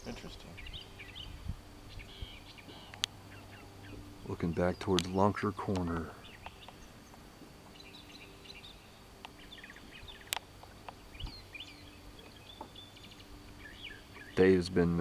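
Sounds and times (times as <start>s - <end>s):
faint songbirds chirping: 0.0s - 15.0s.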